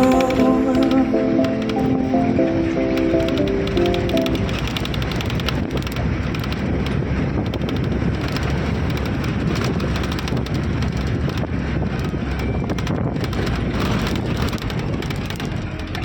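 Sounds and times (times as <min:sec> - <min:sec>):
vehicle rumbling on rough track: 0:04.2 - 0:16.0
wind buffeting microphone: 0:04.5 - 0:16.0
small rattles and knocks: 0:04.6 - 0:16.0.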